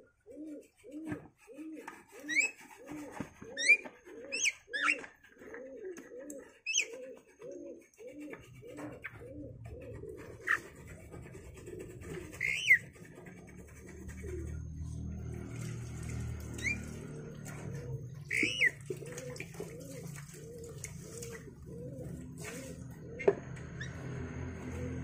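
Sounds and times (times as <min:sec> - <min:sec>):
pigeon cooing: 0:00.0 - 0:25.0
small bird chirping: 0:12.3 - 0:12.9, 0:18.2 - 0:18.8.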